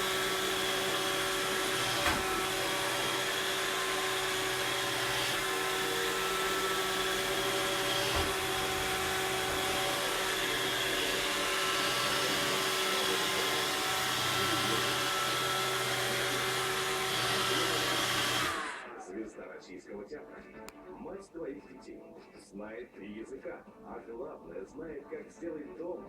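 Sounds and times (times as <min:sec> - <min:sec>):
robot vacuum cleaner running: 0:00.0 - 0:19.1.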